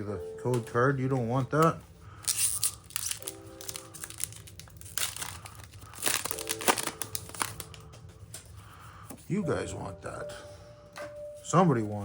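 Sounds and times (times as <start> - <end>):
quiet background music: 0.0 - 12.0
foil wrappers crinkling: 1.5 - 8.5.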